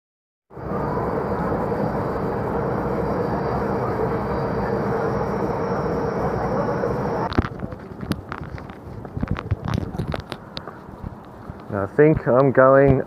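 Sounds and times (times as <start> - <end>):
mechanical drone: 0.5 - 7.5.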